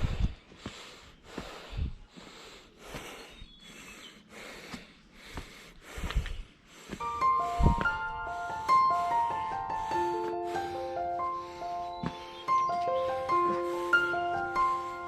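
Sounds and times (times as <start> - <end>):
person panting heavily: 0.0 - 15.0
music: 7.0 - 15.0.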